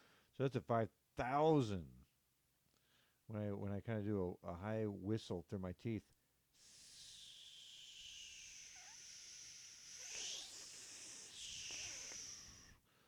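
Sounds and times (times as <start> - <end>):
breathy whistle through teeth: 6.6 - 12.8.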